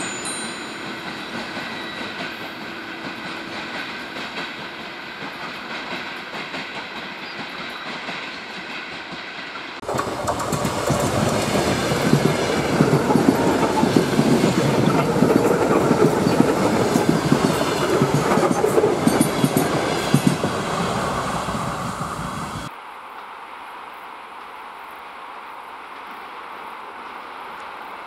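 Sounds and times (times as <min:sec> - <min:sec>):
train wheels clattering on rail joints: 0:00.8 - 0:22.6.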